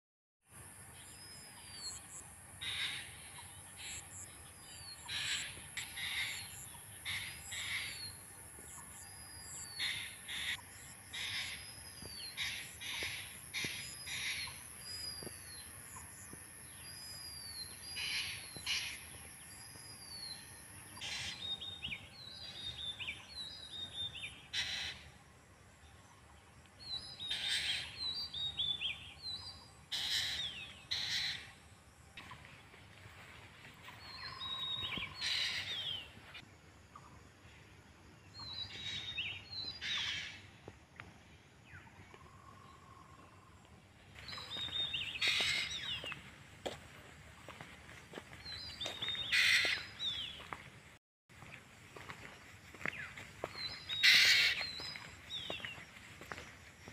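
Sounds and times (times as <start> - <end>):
scattered bird chirps: 52.9 - 55.9.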